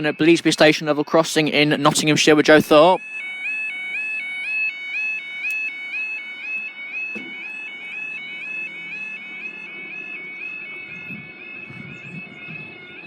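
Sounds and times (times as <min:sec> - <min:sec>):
two-tone level crossing alarm: 0:00.0 - 0:13.0
short knock: 0:07.1 - 0:07.4.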